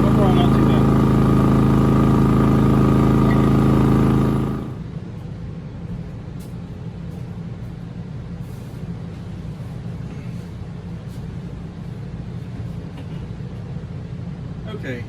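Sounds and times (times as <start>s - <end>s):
generator engine hum: 0.0s - 5.2s.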